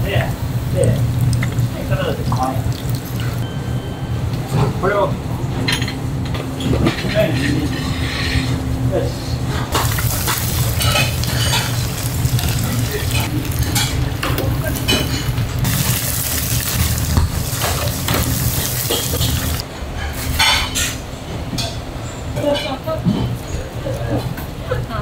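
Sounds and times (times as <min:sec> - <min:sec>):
steady low hum: 0:00.0 - 0:20.1
food sizzling in a pan: 0:09.8 - 0:19.6
utensils clinking and scraping: 0:09.8 - 0:21.0.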